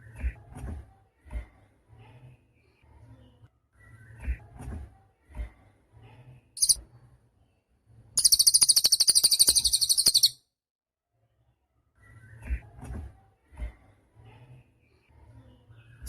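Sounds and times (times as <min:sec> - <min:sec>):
songbird high chirp: 0:06.6 - 0:06.8, 0:08.2 - 0:10.4
songbird rapid high trill: 0:08.2 - 0:10.4.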